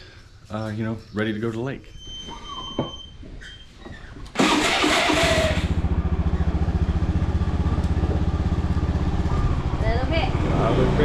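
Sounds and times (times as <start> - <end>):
motorbike engine starting and idling: 4.3 - 11.0.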